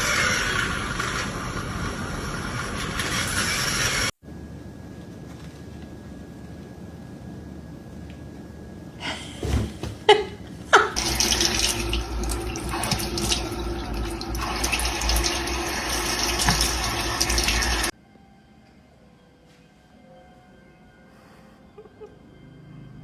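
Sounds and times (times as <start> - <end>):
tap running into a sink: 11.0 - 17.9.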